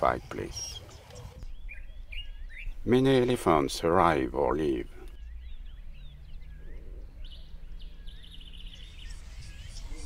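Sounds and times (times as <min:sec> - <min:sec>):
birds chirping: 0:00.0 - 0:10.0
bird trill: 0:00.6 - 0:03.6, 0:05.1 - 0:10.0
low steady background rumble: 0:01.4 - 0:10.0.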